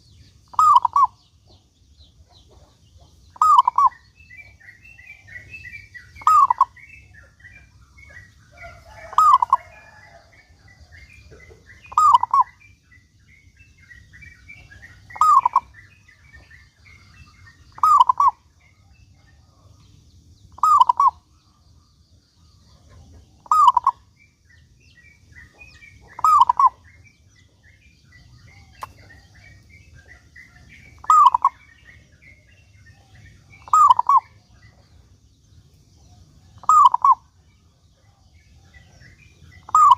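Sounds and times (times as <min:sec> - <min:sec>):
dove cooing: 0:00.0 - 0:01.2, 0:03.4 - 0:06.9, 0:07.5 - 0:12.6, 0:14.5 - 0:17.0, 0:17.7 - 0:19.7, 0:20.6 - 0:21.2, 0:22.8 - 0:24.1, 0:25.4 - 0:27.1, 0:28.2 - 0:34.8, 0:36.4 - 0:37.3, 0:38.0 - 0:39.9
faint small bird chirps: 0:00.0 - 0:39.9.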